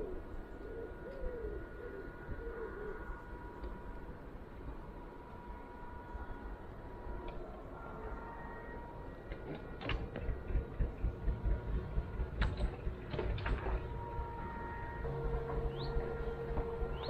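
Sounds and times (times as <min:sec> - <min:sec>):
diesel engine thumping: 0:09.4 - 0:17.0.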